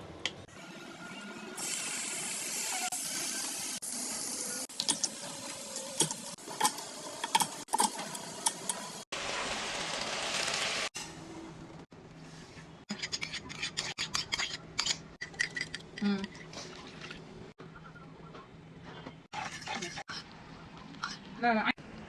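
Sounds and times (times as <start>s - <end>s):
chicken sizzling in hot oil: 1.6s - 11.0s.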